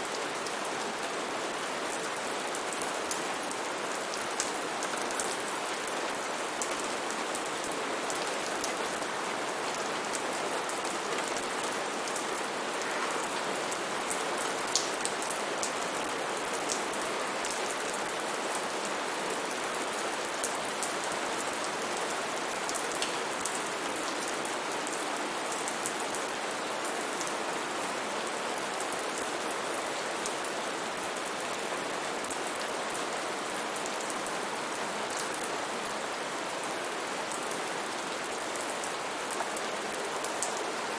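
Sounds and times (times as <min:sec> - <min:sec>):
rain hiss: 0:00.0 - 0:40.9
raindrops pattering on surfaces: 0:09.8 - 0:27.3.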